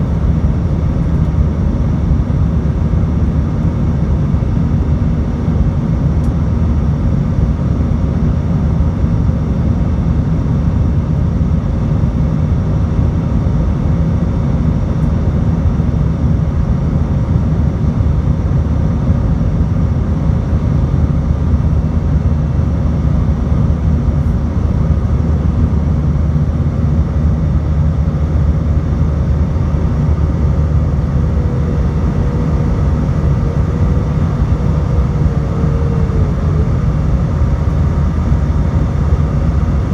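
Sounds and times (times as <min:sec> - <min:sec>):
jet cabin engine rumble: 0:00.0 - 0:39.9
faint steady tones: 0:28.1 - 0:39.9
faint wavering tone: 0:28.6 - 0:39.9.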